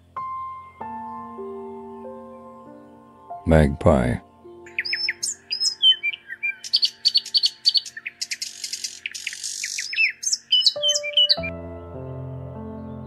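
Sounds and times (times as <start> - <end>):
bird singing whistled notes: 4.4 - 11.5.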